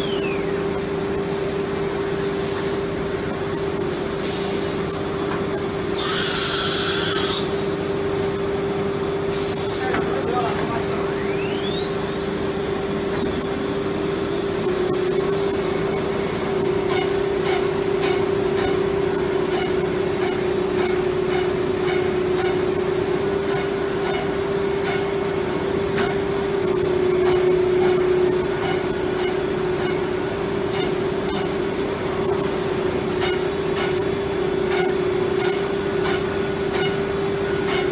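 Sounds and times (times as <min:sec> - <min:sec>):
rising high whine: 0:00.0 - 0:01.2, 0:10.9 - 0:16.7
machine hiss: 0:05.6 - 0:08.1
router spindle whine: 0:10.9 - 0:15.4.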